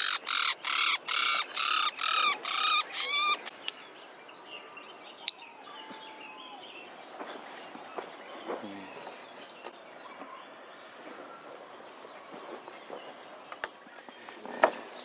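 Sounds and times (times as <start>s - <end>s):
bird squawking harshly: 0.0s - 3.5s.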